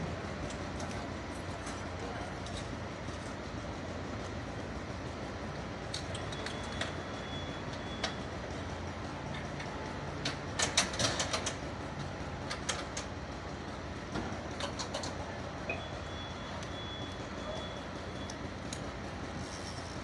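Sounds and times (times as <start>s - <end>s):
vehicle engine idling: 0.0s - 20.0s
sharp clicks and knocks: 9.3s - 11.6s, 14.1s - 15.8s.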